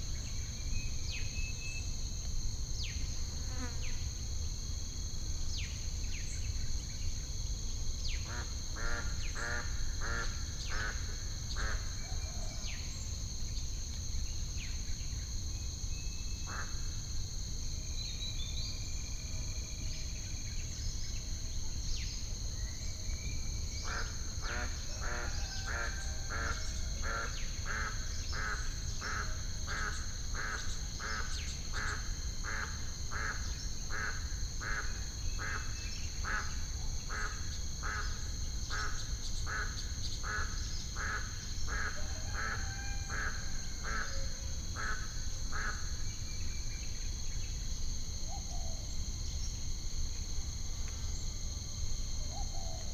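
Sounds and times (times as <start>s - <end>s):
high insect buzz: 2.9s - 4.1s.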